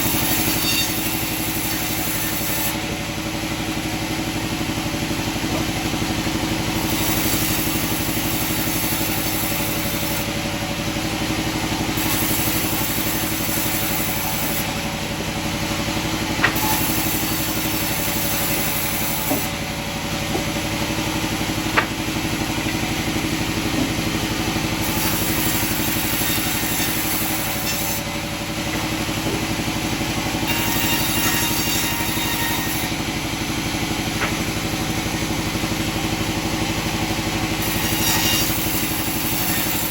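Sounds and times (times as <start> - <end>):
sawmill machinery humming: 0.0 - 39.9
sharp knocks: 16.4 - 16.8, 21.7 - 22.1, 34.2 - 34.5.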